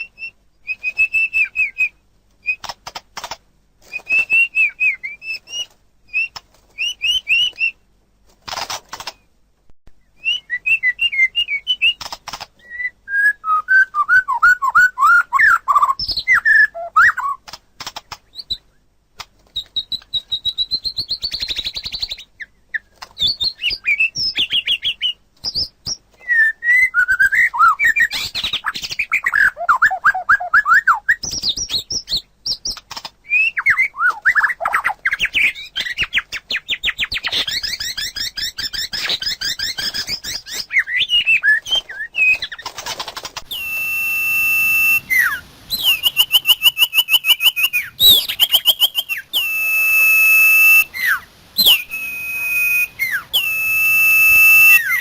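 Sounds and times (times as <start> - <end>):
songbird singing trills: 43.4 - 55.0
long whistled notes: 43.5 - 55.0.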